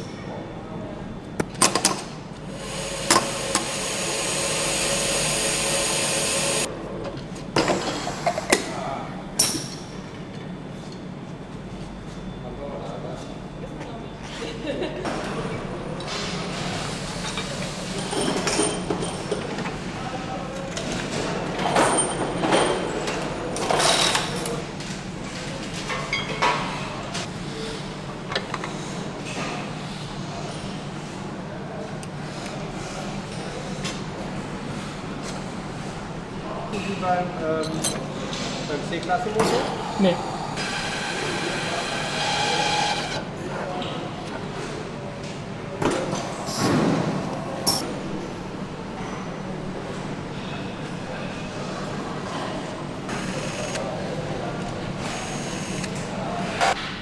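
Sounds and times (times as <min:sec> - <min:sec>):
machine hum: 0:02.2 - 0:06.7, 0:39.5 - 0:43.3
metal tools clanking: 0:47.6 - 0:47.9.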